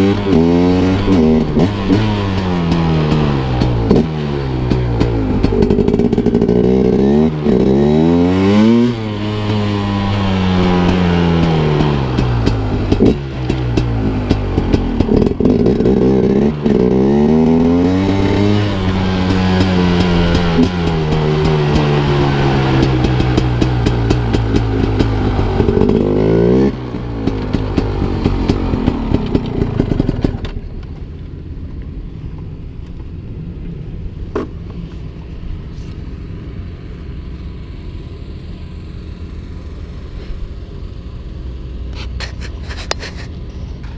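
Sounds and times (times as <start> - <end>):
two-stroke engine revving: 0.0 - 30.6.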